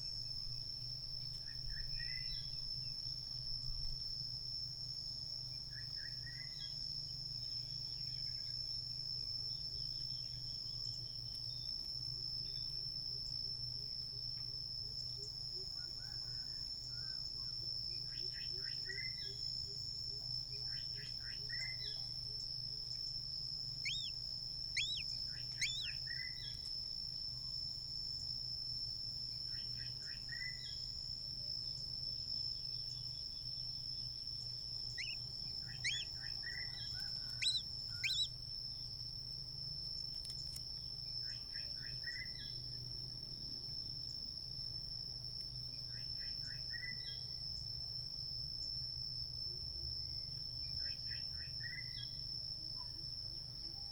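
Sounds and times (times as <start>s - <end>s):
insect drone: 0.0s - 53.9s
small birds chirping: 23.7s - 26.7s, 34.0s - 38.4s.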